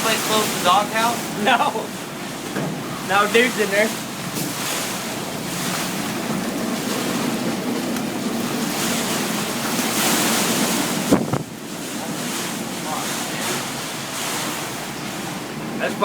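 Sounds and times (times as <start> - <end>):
wind blowing across microphone: 10.2 - 12.1.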